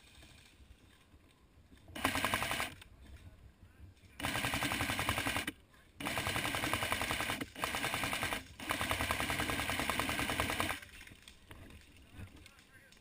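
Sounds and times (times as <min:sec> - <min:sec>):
airsoft rifle automatic fire: 0:02.0 - 0:02.8, 0:04.2 - 0:11.0.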